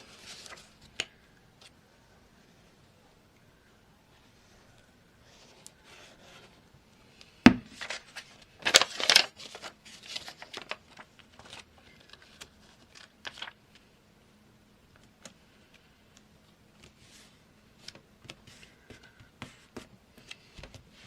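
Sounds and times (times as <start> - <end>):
paper and card rustling: 0.0 - 1.7, 7.7 - 13.9.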